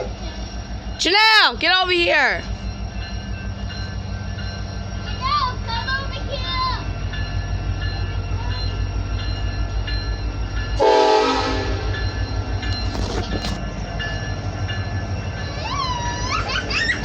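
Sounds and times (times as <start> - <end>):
train rolling past rumbling: 0.0 - 17.0
train horn blast: 10.8 - 12.0
metal clanks: 12.6 - 14.4.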